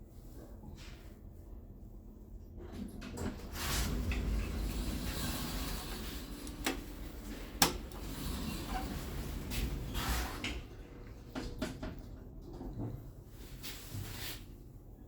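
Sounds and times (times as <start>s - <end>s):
elevator machinery rubbing: 3.7s - 10.4s.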